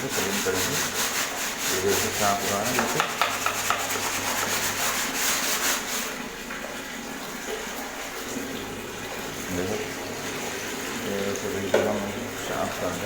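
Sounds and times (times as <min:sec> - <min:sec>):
water washing: 0:00.0 - 0:13.0.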